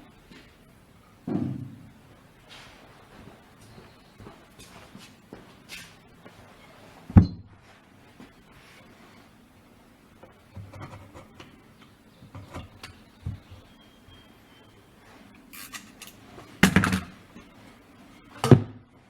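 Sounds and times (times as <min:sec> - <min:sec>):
hand tools clicking and scraping: 0:15.5 - 0:17.2
plastic parts clattering: 0:15.6 - 0:17.2.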